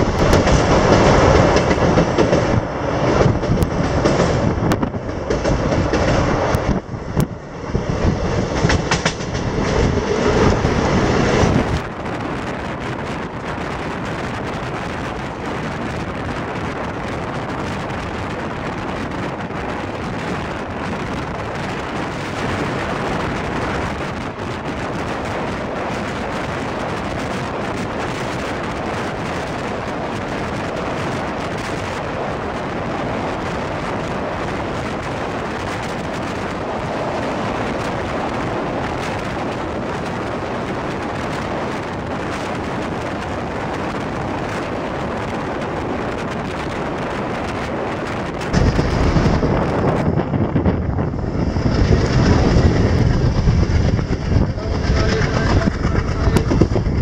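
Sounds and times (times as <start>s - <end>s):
rushing air: 0.0s - 57.0s
train wheel and rail rumble: 0.0s - 57.0s
deep rumble: 33.0s - 57.0s.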